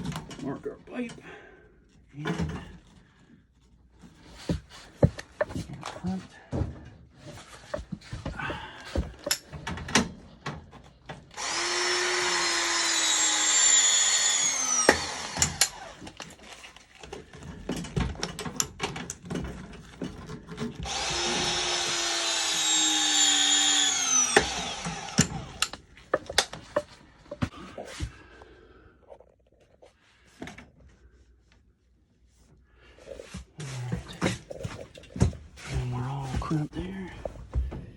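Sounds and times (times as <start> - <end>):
tools being handled: 8.9 - 11.2
cordless power tool running: 11.4 - 16.2, 20.8 - 25.8.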